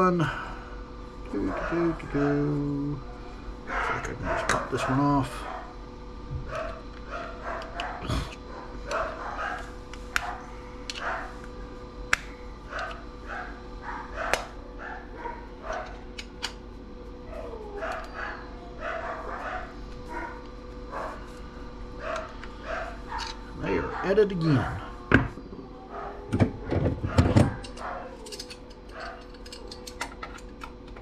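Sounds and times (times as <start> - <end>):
dogs barking: 1.3 - 30.1
tools clicking on metal: 27.5 - 31.0.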